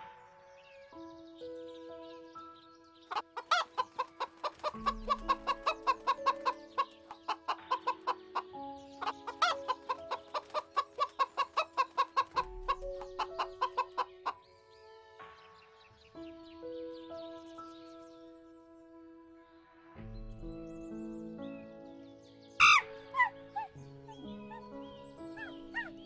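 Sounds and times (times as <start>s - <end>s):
calm music with held notes: 0.0s - 26.0s
chicken clucking: 3.1s - 14.4s.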